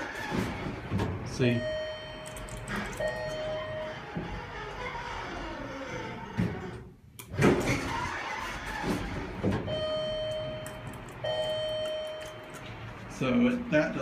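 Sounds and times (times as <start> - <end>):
elevator doors sliding: 0.0 - 11.9
knocks and clunks: 0.1 - 1.3, 8.7 - 11.6.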